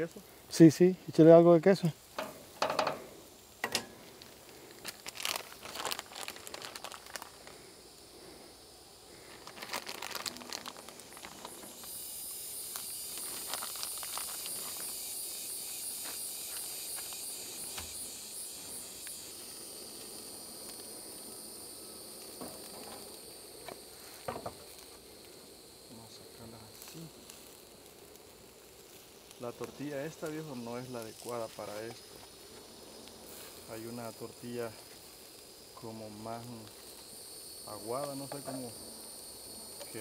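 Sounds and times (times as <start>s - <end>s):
quesadilla sizzling in skillet: 0.0s - 40.0s
crinkling handling noises: 3.7s - 7.6s, 9.1s - 11.9s, 12.7s - 15.0s.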